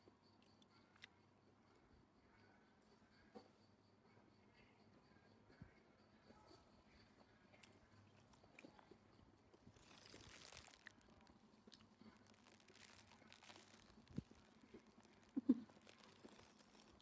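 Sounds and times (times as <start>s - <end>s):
crunching and chewing food: 0.2s - 1.2s, 7.3s - 17.0s.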